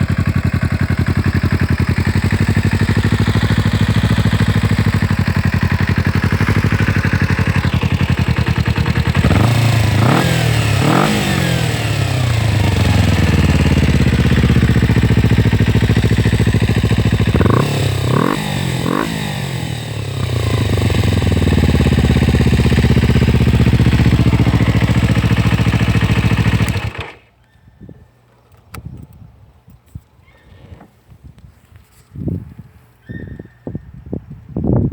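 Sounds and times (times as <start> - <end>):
motorcycle engine idling and revving: 0.0 - 27.3.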